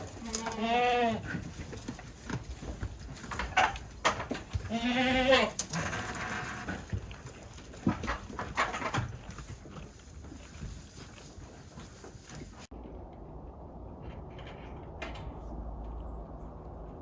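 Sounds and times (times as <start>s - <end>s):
goat bleating: 0.1s - 1.3s, 4.6s - 6.7s.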